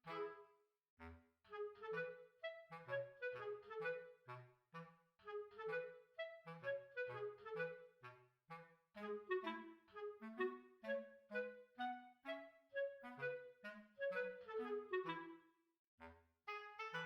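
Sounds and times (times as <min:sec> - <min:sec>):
clarinet-like lead: 0:00.0 - 0:00.5, 0:01.5 - 0:15.4, 0:16.5 - 0:17.0
bouncy instrumental tune: 0:09.0 - 0:15.4.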